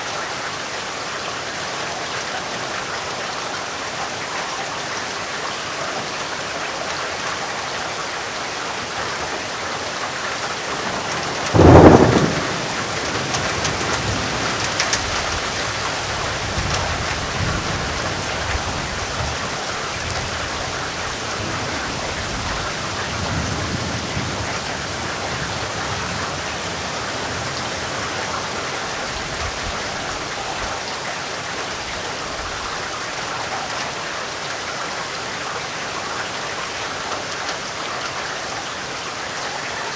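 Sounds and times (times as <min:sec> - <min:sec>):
heavy rain hissing: 0:00.0 - 0:39.9
thunderclap and rumbling: 0:10.7 - 0:28.0.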